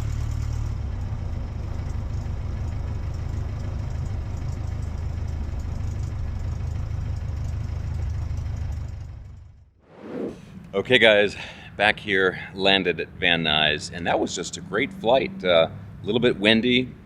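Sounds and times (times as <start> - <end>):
airplane engine idling: 10.2 - 16.6.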